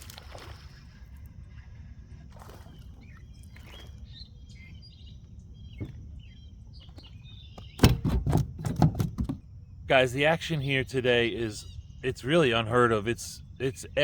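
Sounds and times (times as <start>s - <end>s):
birds chirping: 0.3s - 14.0s
loud knocks and clatter: 7.7s - 9.4s.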